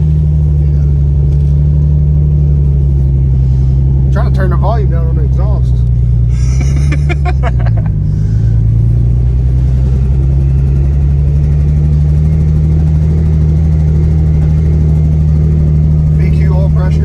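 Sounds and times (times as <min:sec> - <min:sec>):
car engine with loud exhaust: 0:00.0 - 0:17.0.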